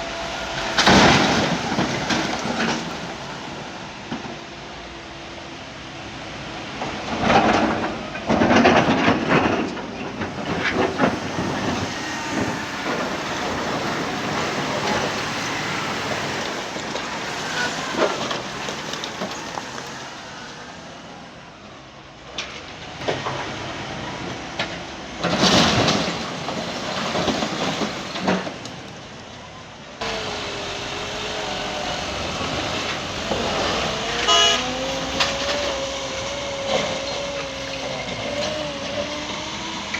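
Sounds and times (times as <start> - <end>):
heavy machinery din: 0.0 - 5.2, 6.1 - 21.0, 30.0 - 39.9
loud crashing surges: 10.1 - 20.1, 30.0 - 39.9
engine revving: 10.2 - 20.5, 30.0 - 39.9.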